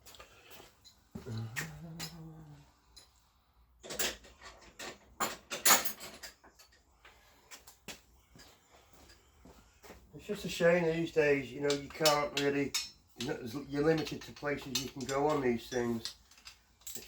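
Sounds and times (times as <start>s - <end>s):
metal tools clinking on bolts: 3.8s - 6.9s, 10.9s - 17.0s.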